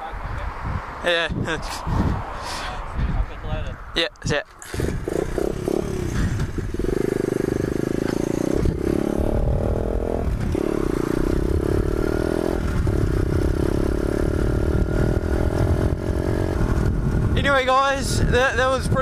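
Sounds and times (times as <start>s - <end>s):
pit bike engine running: 4.6s - 17.4s.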